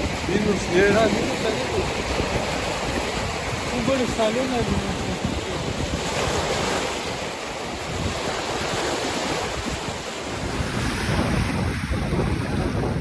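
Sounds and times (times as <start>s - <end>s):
waves washing on shore: 0.0s - 13.0s
wind buffeting microphone: 0.0s - 13.0s.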